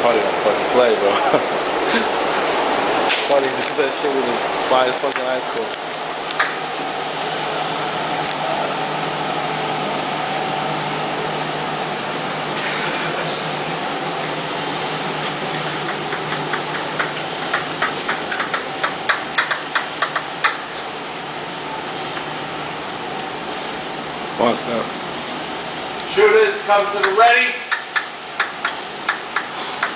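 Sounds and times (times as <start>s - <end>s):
steady fan-like hum: 0.0s - 29.9s.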